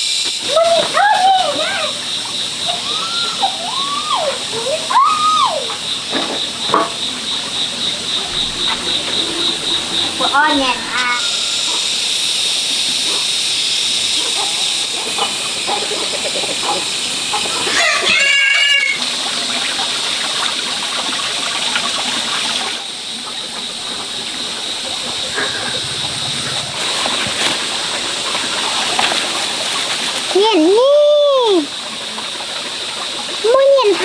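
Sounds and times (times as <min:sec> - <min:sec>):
steady background hiss: 0:00.0 - 0:34.0
rooster crowing: 0:17.7 - 0:19.0.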